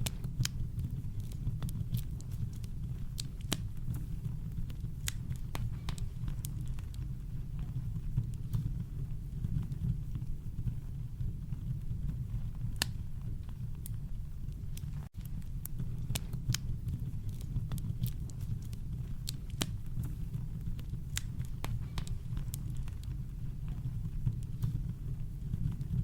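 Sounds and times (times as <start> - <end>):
campfire crackling and popping: 0.0 - 26.0
deep brown noise rumble: 0.0 - 26.0.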